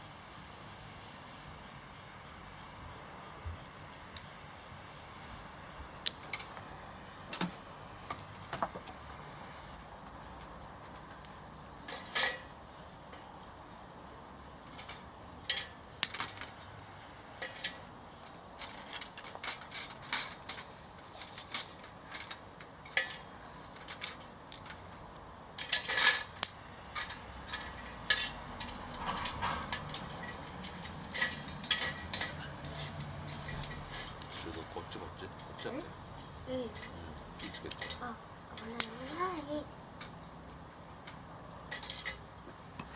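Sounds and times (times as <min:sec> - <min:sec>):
metal clinks and clatters: 0:25.6 - 0:34.6.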